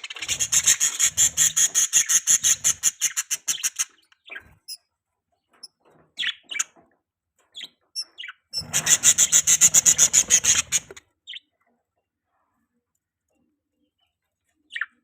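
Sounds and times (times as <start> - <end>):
budgerigar chirping: 7.6 - 11.4.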